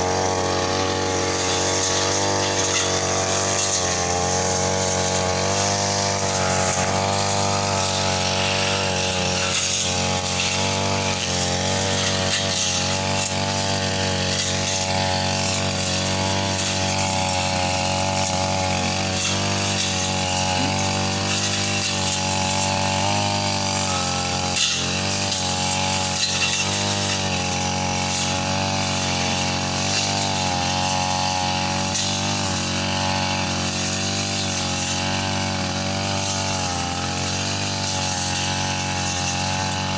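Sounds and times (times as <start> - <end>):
brush cutter engine cutting grass: 0.0 - 39.9.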